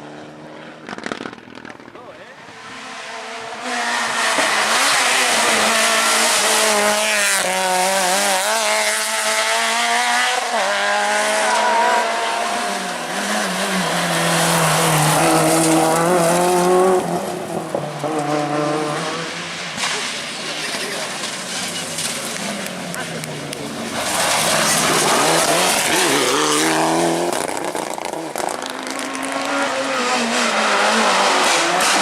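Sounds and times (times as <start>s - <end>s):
rally car engine revving high: 0.0s - 32.0s
tyres on gravel: 19.7s - 29.5s.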